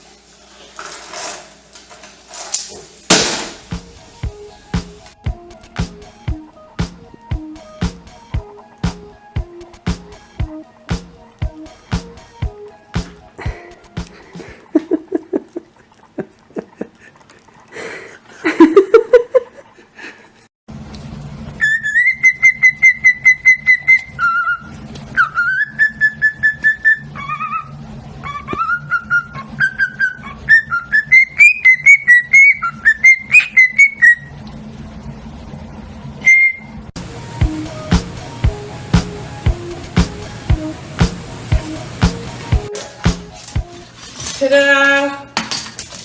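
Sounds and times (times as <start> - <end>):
parrot whistling a tune: 21.6 - 24.6, 25.4 - 34.3, 36.2 - 36.7.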